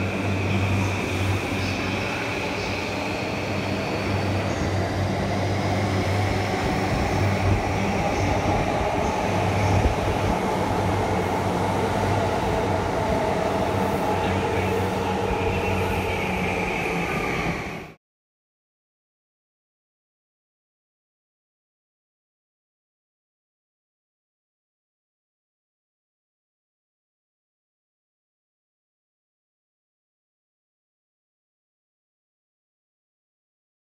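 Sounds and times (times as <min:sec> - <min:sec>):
electric train rolling past: 0:00.0 - 0:18.0.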